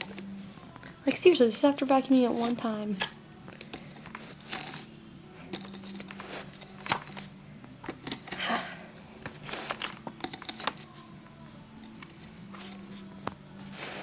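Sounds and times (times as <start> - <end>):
plastic parts clicking and tapping: 5.5 - 8.4, 9.2 - 10.9.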